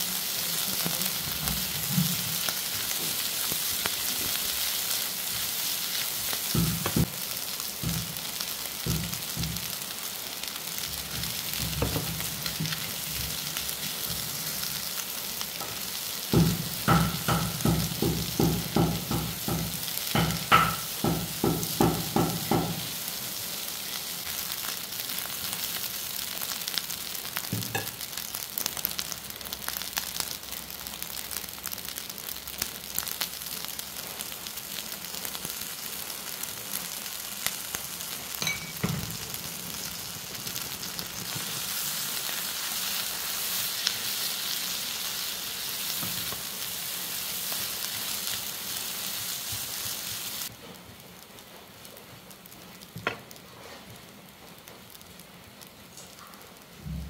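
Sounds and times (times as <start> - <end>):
fried rice sizzling in a pan: 0.0 - 57.0
spatula knocking on pan: 6.5 - 7.1, 7.8 - 8.2, 8.8 - 9.7, 16.3 - 22.9.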